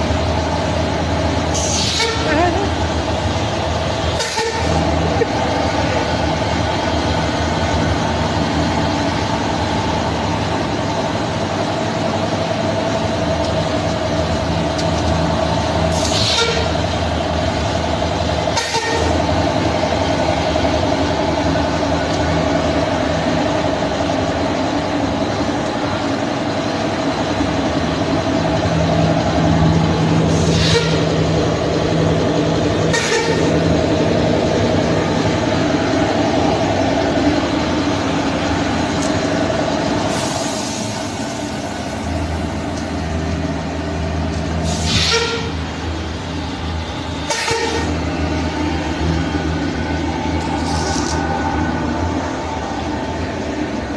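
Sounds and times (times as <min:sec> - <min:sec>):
sharp air hisses: 0:01.5 - 0:02.0, 0:15.9 - 0:16.4, 0:40.1 - 0:42.1, 0:44.6 - 0:45.4.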